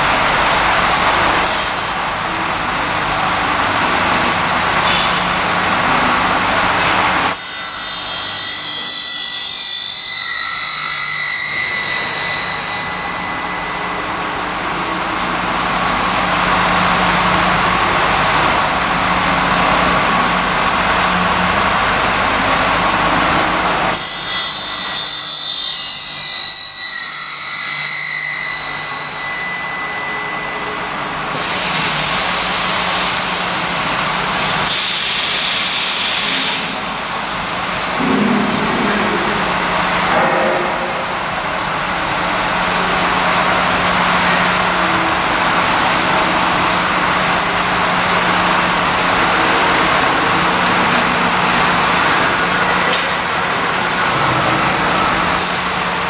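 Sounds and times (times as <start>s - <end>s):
high whining tones: 7.3s - 15.8s.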